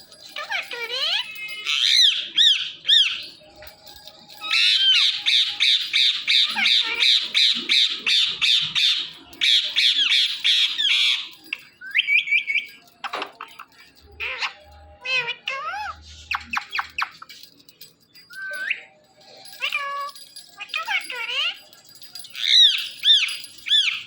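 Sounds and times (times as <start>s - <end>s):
parrot screeching and squawking: 0.3s - 3.4s, 4.4s - 12.8s, 14.1s - 17.4s, 19.5s - 24.0s.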